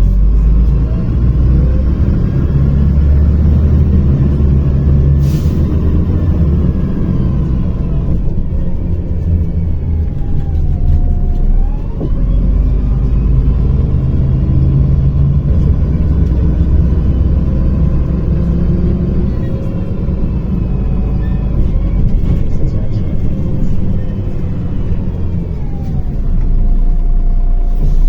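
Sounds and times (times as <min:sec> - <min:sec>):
bus engine and road rumble: 0:00.0 - 0:28.0.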